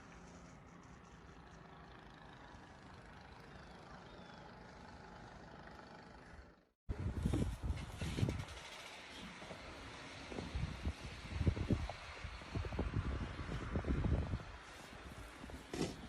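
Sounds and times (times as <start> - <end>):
distant vehicle engine hum: 0.0 - 16.0
wind rumble on microphone: 6.9 - 8.7, 10.3 - 16.0.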